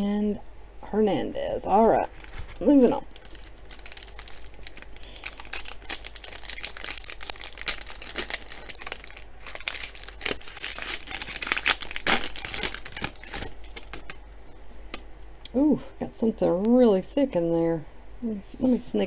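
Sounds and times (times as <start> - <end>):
foil wrapper crinkling and tearing: 2.1 - 14.2.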